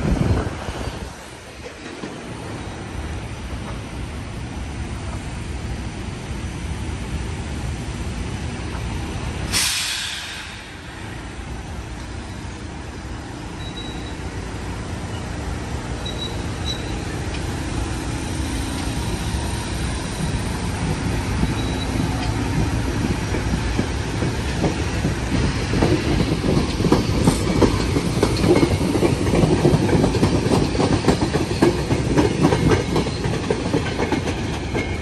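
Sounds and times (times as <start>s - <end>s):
train coaches running on rails: 0.0s - 35.0s
sharp hiss of air: 9.4s - 12.6s.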